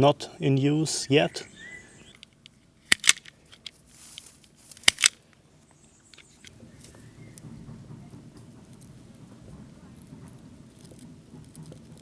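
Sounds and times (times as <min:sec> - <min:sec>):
sharp clicks: 0:02.1 - 0:03.7, 0:04.8 - 0:05.2
soft rustling from handling: 0:02.1 - 0:07.1.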